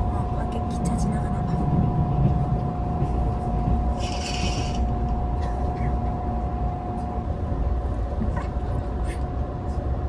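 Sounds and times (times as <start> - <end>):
constant hum: 0.0 - 10.0
train rumble: 0.0 - 10.0
short high hiss: 4.0 - 4.8.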